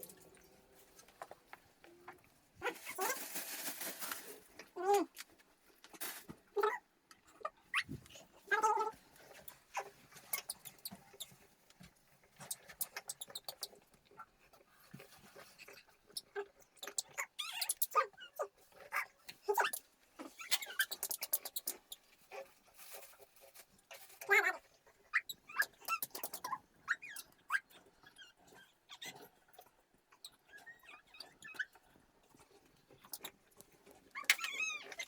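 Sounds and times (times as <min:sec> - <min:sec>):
rustling: 0:00.0 - 0:06.5, 0:20.2 - 0:25.0.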